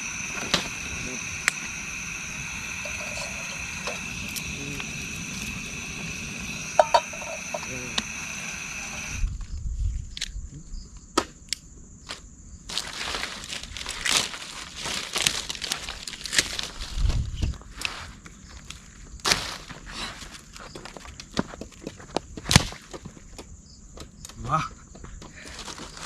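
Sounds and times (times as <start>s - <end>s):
insect chorus drone: 0.0s - 26.0s
crunching and rustling: 12.1s - 21.3s.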